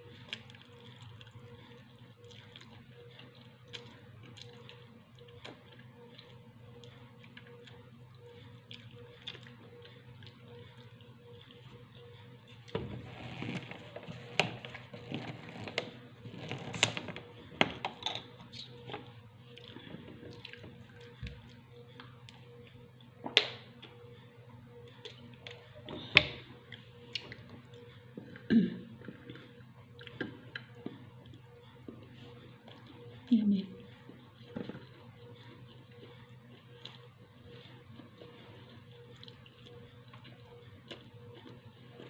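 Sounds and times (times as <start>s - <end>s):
faint steady hum: 0.0s - 42.0s
wet chewing and lip smacks: 0.2s - 7.8s, 37.9s - 42.0s.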